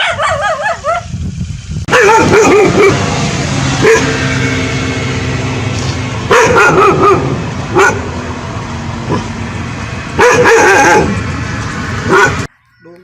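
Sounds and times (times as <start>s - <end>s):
dog barking: 0.0s - 1.1s, 1.9s - 3.0s, 3.8s - 4.2s, 6.3s - 8.1s, 10.2s - 11.2s, 12.1s - 12.5s.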